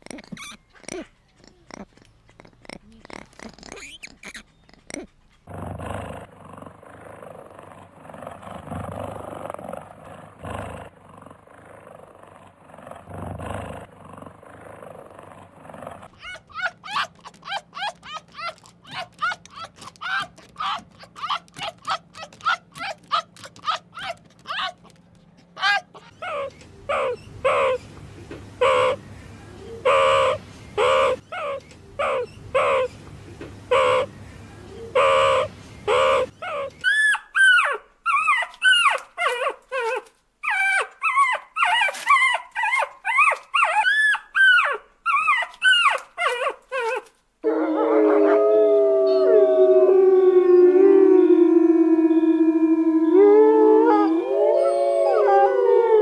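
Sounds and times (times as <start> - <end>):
fox barking and yipping: 16.1 - 27.8, 29.8 - 32.9, 35.0 - 47.1
fox yelping calls: 16.2 - 25.0, 25.6 - 27.8, 28.6 - 29.0, 29.8 - 33.0, 33.7 - 34.1, 34.9 - 47.1
wolves howling: 47.4 - 56.0.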